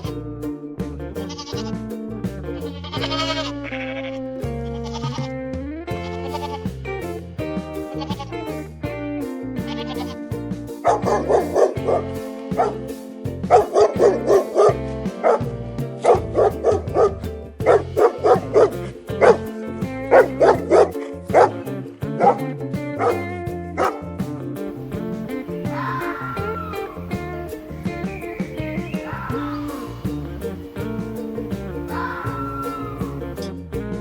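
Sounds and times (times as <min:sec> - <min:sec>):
background music: 0:00.0 - 0:34.0
small dog yapping: 0:25.3 - 0:30.3, 0:31.8 - 0:33.5.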